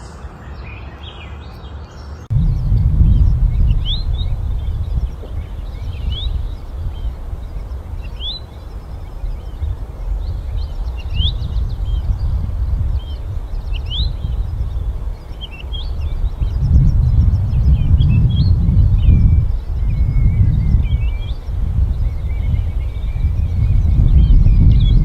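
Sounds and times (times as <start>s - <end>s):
bird chirping: 0.0s - 25.0s
steady low rumble: 2.2s - 25.0s.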